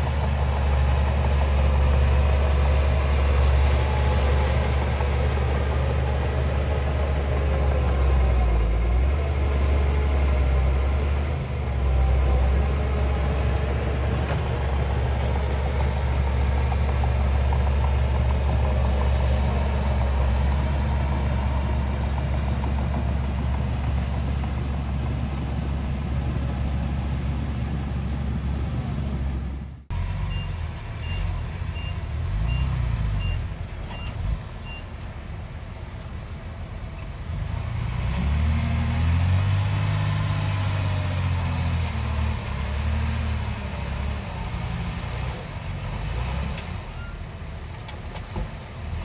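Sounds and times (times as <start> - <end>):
heavy diesel engine running: 0.0 - 49.0.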